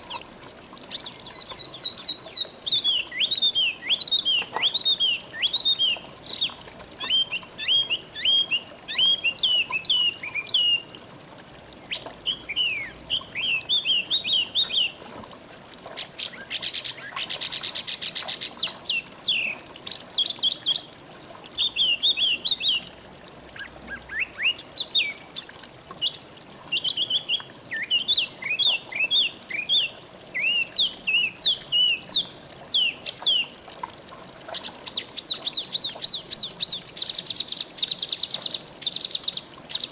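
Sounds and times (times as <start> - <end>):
small songbirds singing: 0.9 - 10.9, 11.8 - 15.0, 16.0 - 20.9, 21.6 - 23.0, 23.6 - 33.6, 34.5 - 39.9.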